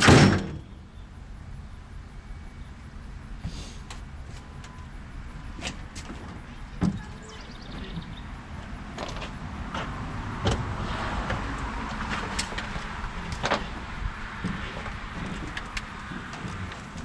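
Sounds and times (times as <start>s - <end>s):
vehicle engine rumbling: 0.0s - 17.0s
sharp knocks and rattles: 5.6s - 17.0s.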